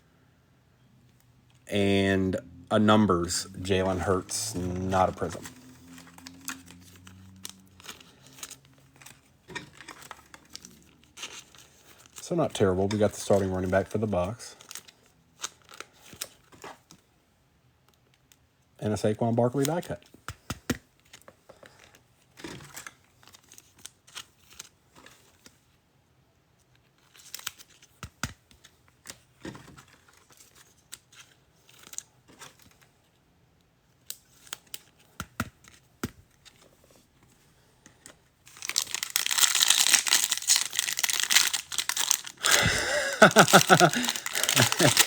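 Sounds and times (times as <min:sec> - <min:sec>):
wrapper crinkling and tearing: 0:03.2 - 0:16.9, 0:27.0 - 0:27.9, 0:38.4 - 0:45.0
cards tapping and sliding: 0:34.2 - 0:36.7.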